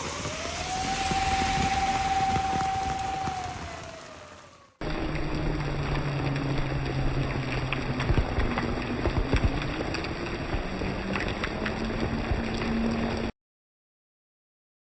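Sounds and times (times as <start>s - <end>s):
heavy rain: 0.0s - 13.3s
strong wind: 0.0s - 13.3s.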